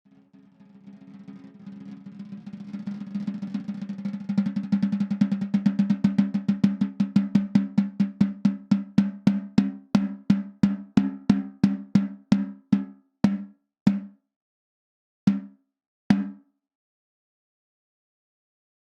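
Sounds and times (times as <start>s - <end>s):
snare drum roll and strokes: 0.1s - 8.8s.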